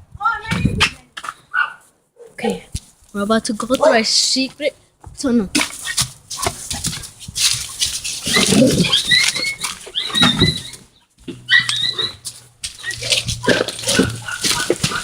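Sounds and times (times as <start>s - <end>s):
rustling: 5.6s - 15.0s
dog whining: 8.2s - 15.0s.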